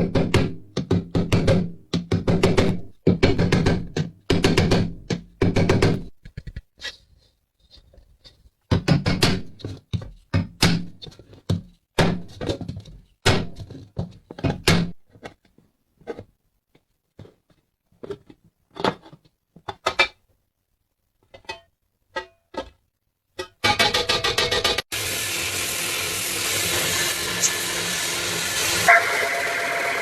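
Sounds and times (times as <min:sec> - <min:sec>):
hard objects knocking and thunking: 0:00.0 - 0:06.7, 0:08.7 - 0:20.3.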